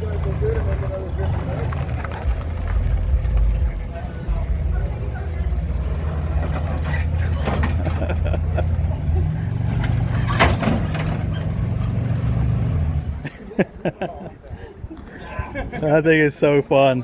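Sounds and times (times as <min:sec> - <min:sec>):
vehicle engine idling: 0:00.0 - 0:13.2.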